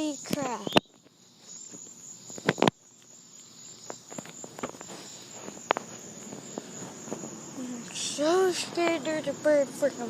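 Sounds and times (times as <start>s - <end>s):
crickets chirping: 0.0s - 10.0s
sharp clicks: 0.3s - 4.8s
light footsteps: 3.8s - 7.5s.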